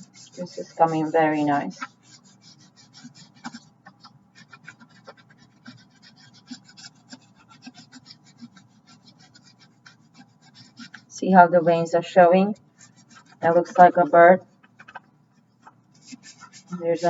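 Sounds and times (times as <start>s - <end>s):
crayon scratching on paper: 0.0s - 17.0s.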